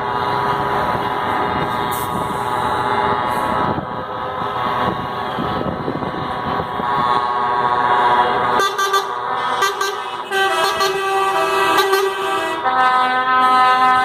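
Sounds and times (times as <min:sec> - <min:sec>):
truck engines rumbling: 0:00.0 - 0:14.0
truck air horns: 0:06.8 - 0:14.0.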